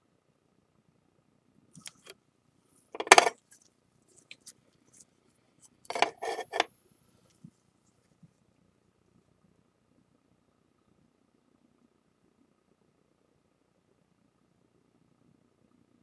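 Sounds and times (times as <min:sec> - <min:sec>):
knocks and clinks: 0:03.0 - 0:03.4, 0:05.9 - 0:06.7.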